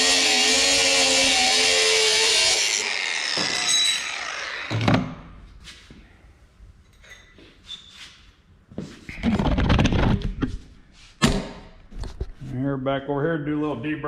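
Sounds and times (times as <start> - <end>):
cutoff wheel cutting metal: 0.0 - 4.9.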